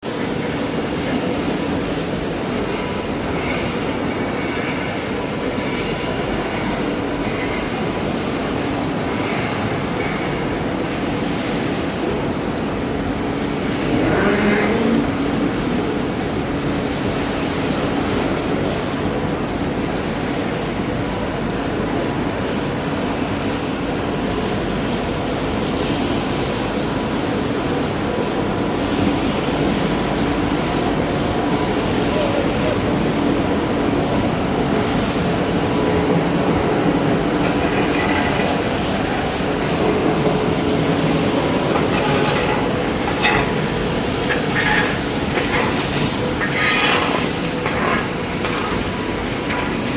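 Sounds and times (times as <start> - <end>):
furnace mechanical rumble and hiss: 0.0 - 49.9
constant hum: 30.6 - 49.9.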